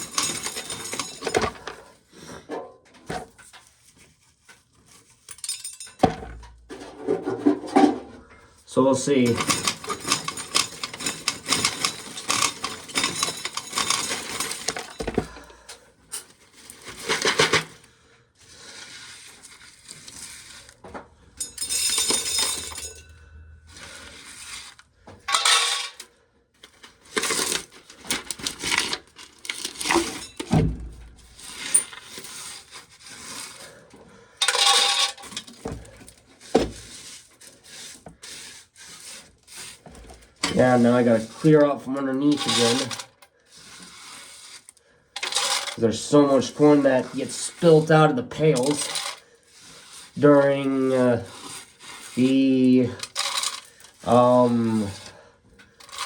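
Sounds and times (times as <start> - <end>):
corn kernels rattling into pails: 0.0 - 1.9, 8.7 - 17.9, 21.4 - 23.1, 23.7 - 30.5, 34.4 - 56.0.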